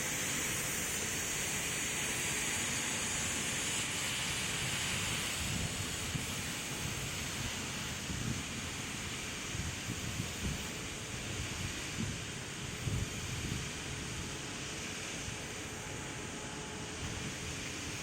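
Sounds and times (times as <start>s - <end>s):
steady background hiss: 0.0s - 18.0s
wind gusting on microphone: 5.0s - 14.6s.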